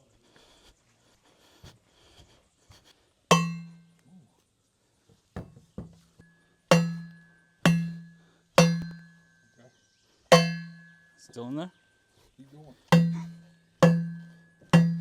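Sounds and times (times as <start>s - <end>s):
hammer striking metal: 3.3s - 3.8s, 6.7s - 9.2s, 10.3s - 11.0s, 12.9s - 15.0s.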